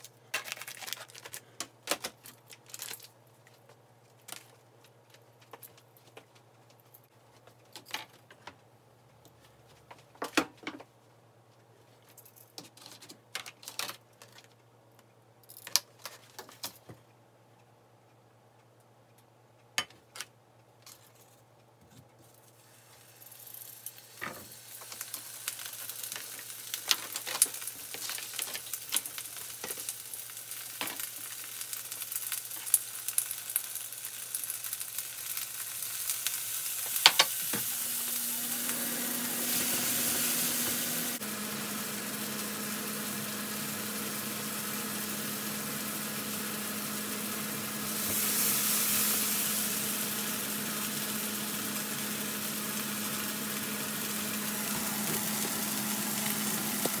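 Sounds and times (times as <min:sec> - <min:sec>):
vegetables sizzling in oil: 0:22.6 - 0:57.0.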